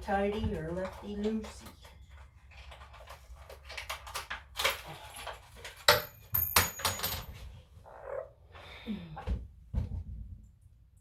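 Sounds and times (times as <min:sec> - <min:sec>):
metal hardware clinking and rattling: 0:03.8 - 0:07.4.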